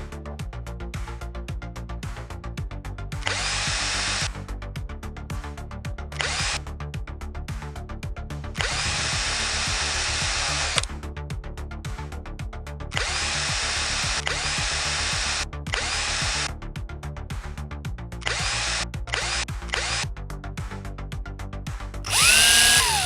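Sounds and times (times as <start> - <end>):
background music with fast beat: 0.0 - 23.0
power tool running in bursts: 22.1 - 23.0.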